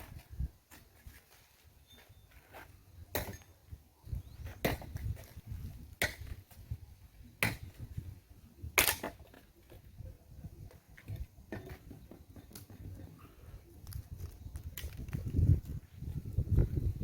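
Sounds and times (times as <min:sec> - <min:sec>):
wood chopping strikes: 0:03.1 - 0:03.4, 0:06.0 - 0:06.5, 0:07.4 - 0:07.9, 0:08.8 - 0:09.4.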